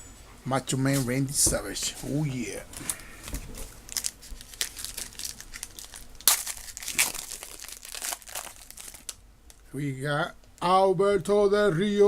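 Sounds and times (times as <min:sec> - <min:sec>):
wrapper crinkling and rustling: 0:02.3 - 0:09.6.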